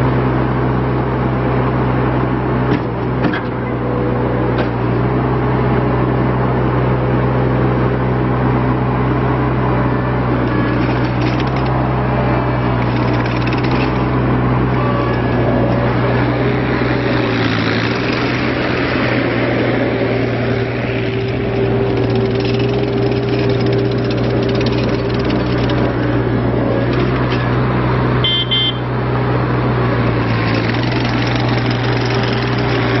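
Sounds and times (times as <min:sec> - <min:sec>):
diesel engine running: 0:00.0 - 0:33.0
high beep: 0:28.2 - 0:28.8.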